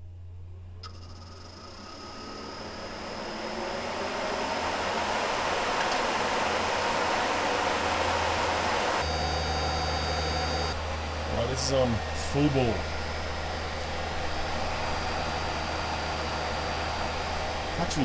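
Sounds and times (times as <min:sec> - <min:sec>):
air conditioner fan rushing: 0:00.0 - 0:18.0.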